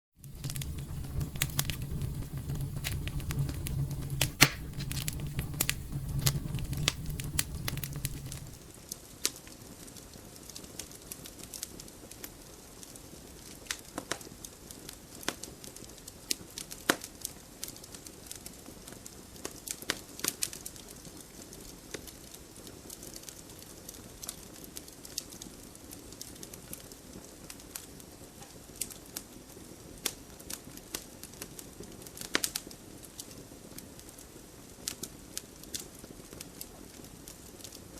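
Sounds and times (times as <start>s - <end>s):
low rumble: 0.2s - 8.7s
wood fire crackling: 0.2s - 37.9s.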